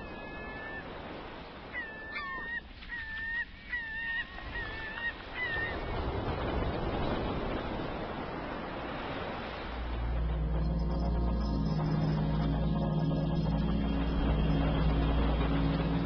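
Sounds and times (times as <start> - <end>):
birds calling: 1.7 - 5.8.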